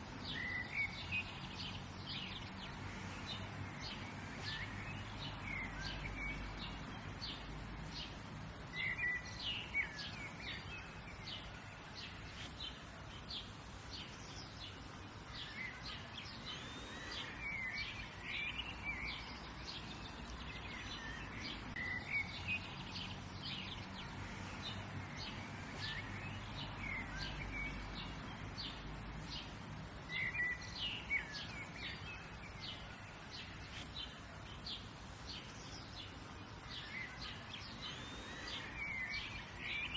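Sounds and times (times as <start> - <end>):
low outdoor background hum: 0.0 - 39.9
birds chirping and singing: 0.2 - 39.9.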